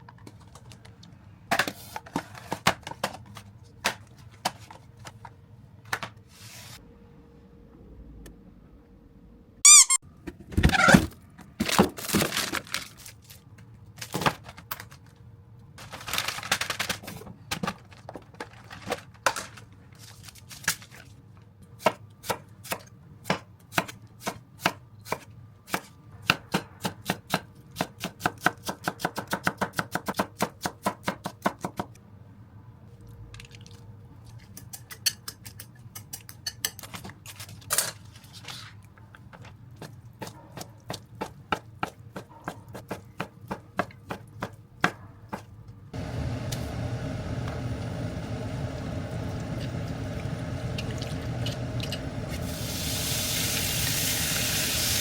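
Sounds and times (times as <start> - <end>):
scraping and handling sounds: 0.0 - 6.8, 10.3 - 21.5, 35.6 - 41.5.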